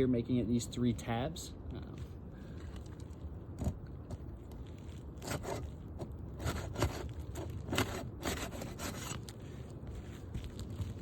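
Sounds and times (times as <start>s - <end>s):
roof shingles tearing and scraping: 4.6s - 9.4s.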